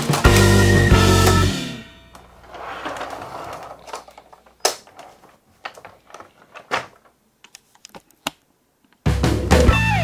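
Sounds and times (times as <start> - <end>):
plastic scraping rustle: 2.4 - 7.2.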